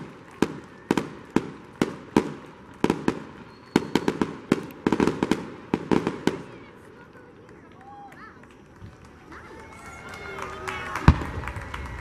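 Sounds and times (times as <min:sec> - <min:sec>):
fireworks bursting with bangs: 0:00.0 - 0:07.7, 0:11.0 - 0:11.9
rapid firework cracks: 0:00.0 - 0:09.6, 0:10.7 - 0:12.0.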